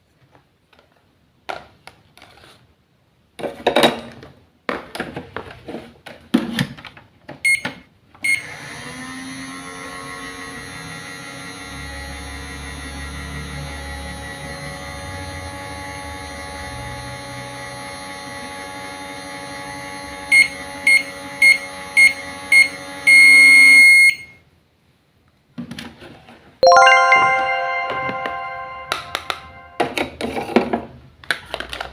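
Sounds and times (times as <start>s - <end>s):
microwave beeps: 7.5s - 7.7s.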